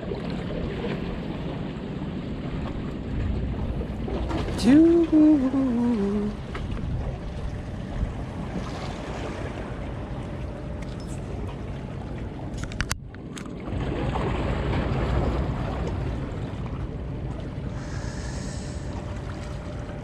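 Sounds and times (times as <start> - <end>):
sea water washing: 0.0 - 20.0
wind rumbling on microphone: 0.0 - 20.0.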